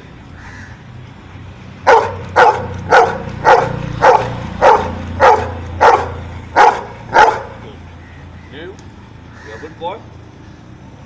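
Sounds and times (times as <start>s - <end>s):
dog barking: 1.8s - 7.6s.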